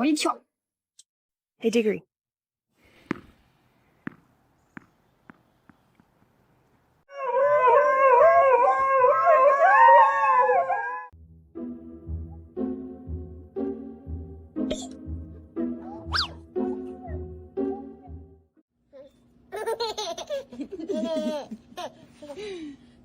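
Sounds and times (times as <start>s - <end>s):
dog howling: 7.1s - 11.1s
music with low beat: 11.2s - 18.5s.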